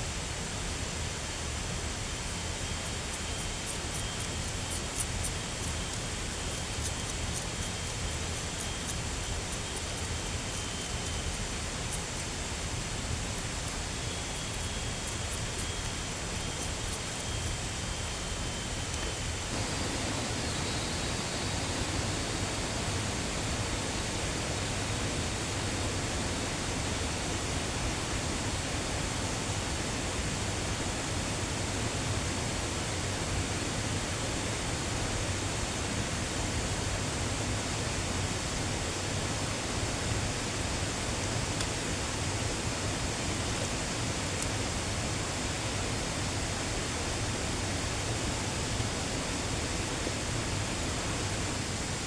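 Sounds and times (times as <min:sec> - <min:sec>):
running water rushing: 0:19.3 - 0:52.0.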